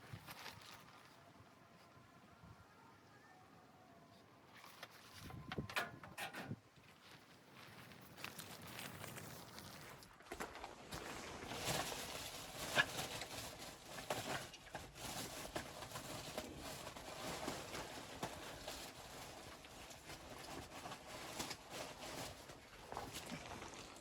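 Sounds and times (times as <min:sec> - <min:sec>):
footsteps crunching in snow: 0:06.8 - 0:13.3.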